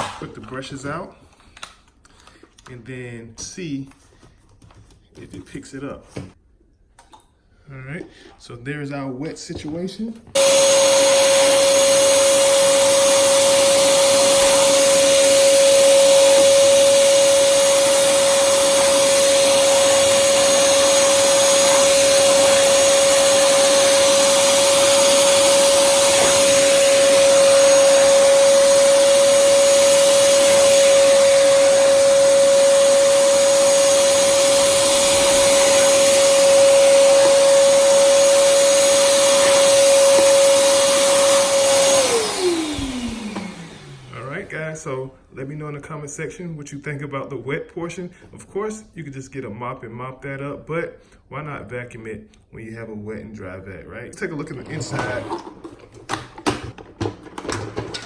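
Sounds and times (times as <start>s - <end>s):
shop vacuum sucking up water: 10.4s - 44.4s, 54.3s - 58.0s.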